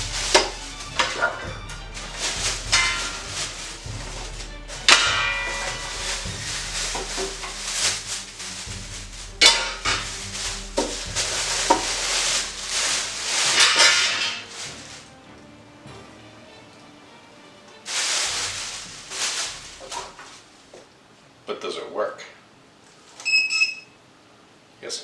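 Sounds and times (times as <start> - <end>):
hard parts clacking and knocking: 0.0 - 15.1.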